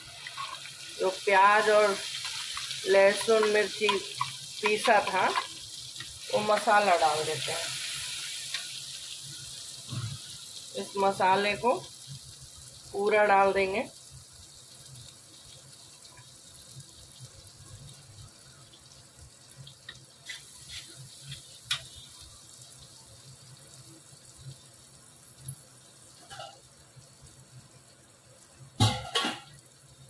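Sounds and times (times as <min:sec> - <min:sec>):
paste sizzling in hot oil: 0:00.0 - 0:26.8
metal spoon scraping a pan: 0:00.2 - 0:00.7, 0:01.6 - 0:06.1, 0:20.2 - 0:22.1.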